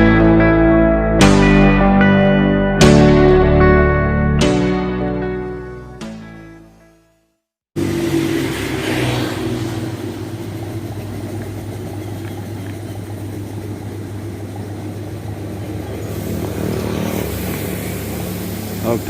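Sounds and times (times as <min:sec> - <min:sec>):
engine humming: 0:07.8 - 0:19.0.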